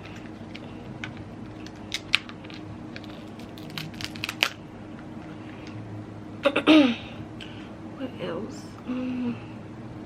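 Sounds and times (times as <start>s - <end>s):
seafood shells cracking: 0.0s - 4.6s
steady low hum: 0.0s - 10.0s.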